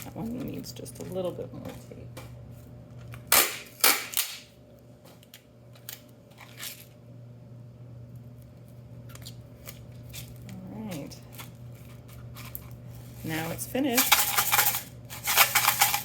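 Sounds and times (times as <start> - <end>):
packing tape ripping off roll: 3.3 - 4.5.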